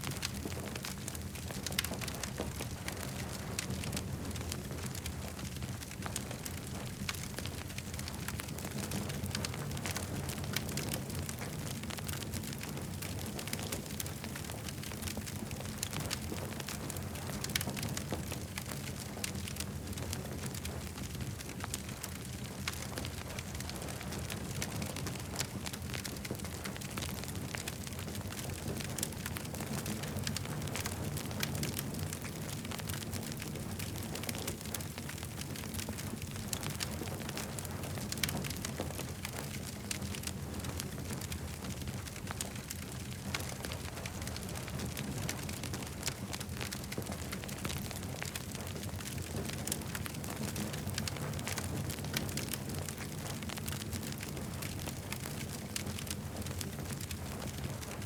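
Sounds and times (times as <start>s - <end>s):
campfire crackling: 0.0s - 58.0s.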